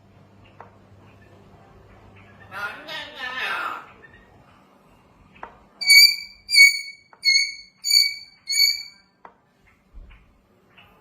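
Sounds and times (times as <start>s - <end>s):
bird whistling: 5.8s - 9.0s.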